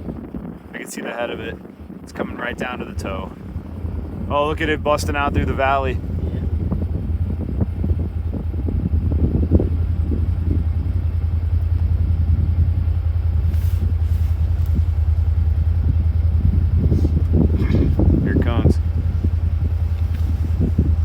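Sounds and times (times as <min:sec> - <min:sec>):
avalanche rumbling: 0:00.0 - 0:21.0
faint crackling: 0:09.7 - 0:21.0.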